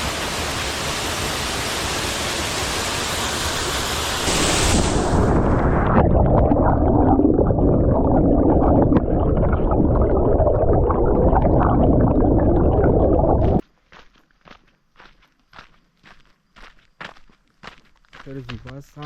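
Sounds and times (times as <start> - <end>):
rushing water churning: 0.0 - 13.6.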